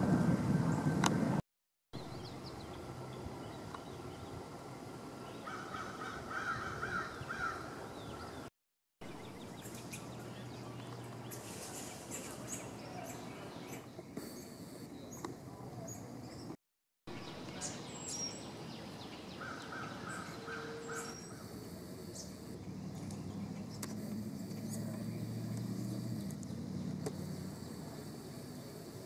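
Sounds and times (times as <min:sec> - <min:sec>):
bird calls: 0:05.3 - 0:08.5, 0:17.2 - 0:28.0.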